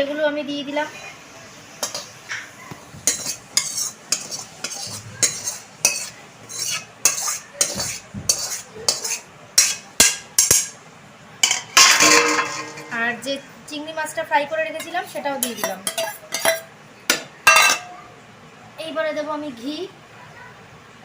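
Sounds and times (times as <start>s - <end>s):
spatula scraping and knocking on pan: 2.8s - 10.8s, 11.4s - 13.0s.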